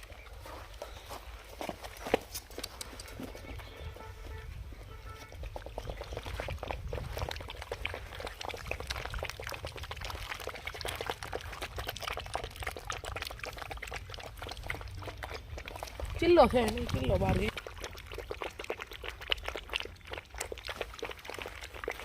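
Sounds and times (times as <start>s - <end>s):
puppies lapping liquid: 0.0s - 22.0s.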